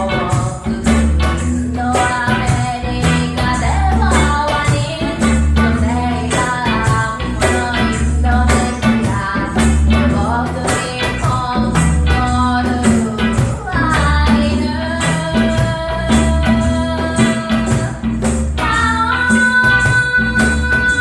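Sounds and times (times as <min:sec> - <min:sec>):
live reggae band: 0:00.0 - 0:21.0
person singing: 0:00.0 - 0:21.0.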